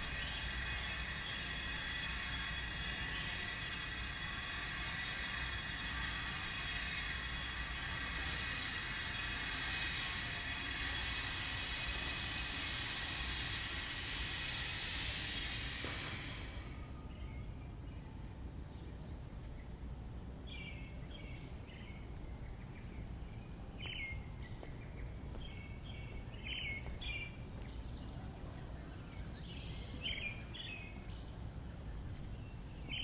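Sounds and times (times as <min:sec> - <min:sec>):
power tool grinding stone: 0:00.0 - 0:16.4.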